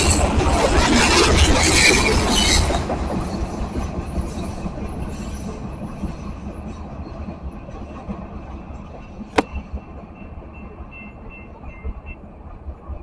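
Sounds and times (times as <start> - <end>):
freight train rumbling: 0.0 - 13.0.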